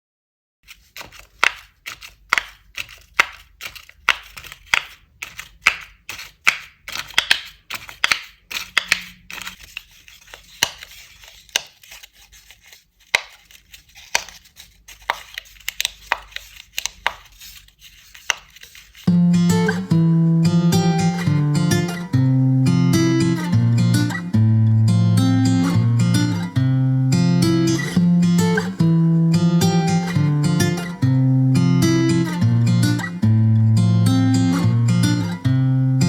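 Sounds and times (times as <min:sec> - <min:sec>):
paper snaps and crinkles: 0:00.6 - 0:19.1
acoustic guitar music: 0:19.1 - 0:36.0.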